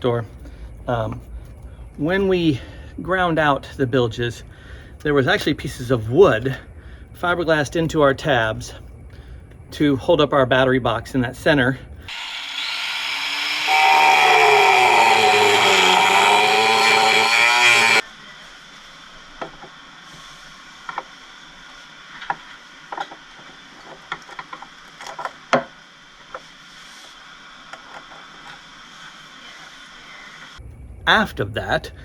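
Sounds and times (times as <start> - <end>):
handheld power tool running: 12.1 - 18.0.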